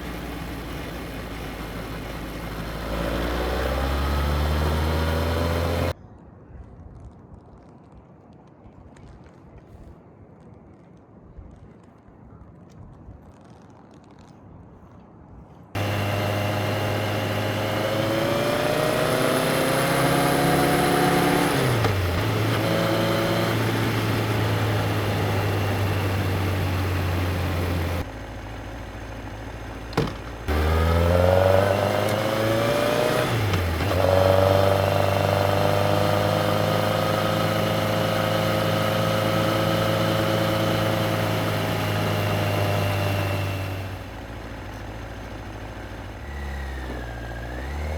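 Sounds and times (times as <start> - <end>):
motorcycle engine accelerating: 0.0 - 6.0, 15.8 - 47.9.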